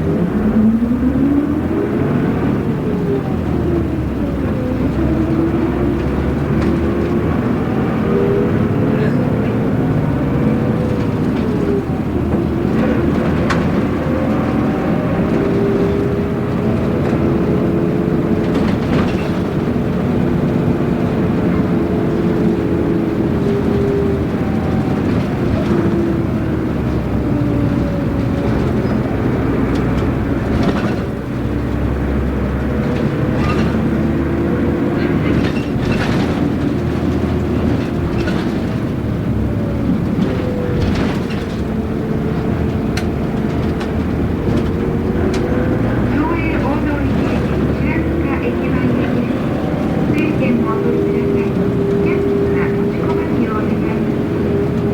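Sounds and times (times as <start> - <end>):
bus diesel engine: 0.0 - 54.9
road rumble: 0.0 - 54.9
body rattles and knocks: 9.8 - 48.2.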